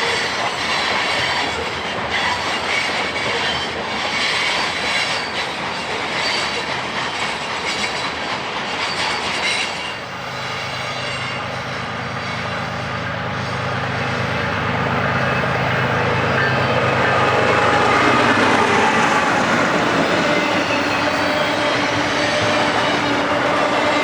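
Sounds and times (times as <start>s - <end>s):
freight train wheels clicking: 0.0s - 24.0s
flange squeal: 8.8s - 24.0s.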